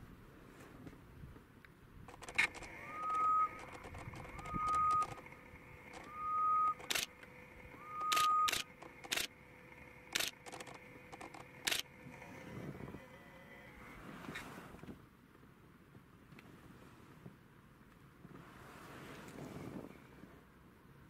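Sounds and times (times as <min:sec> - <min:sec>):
sharp clicks: 0:02.1 - 0:05.3, 0:05.9 - 0:09.4, 0:10.1 - 0:11.9
bird whistling: 0:02.8 - 0:05.2, 0:06.0 - 0:06.9, 0:07.8 - 0:08.7.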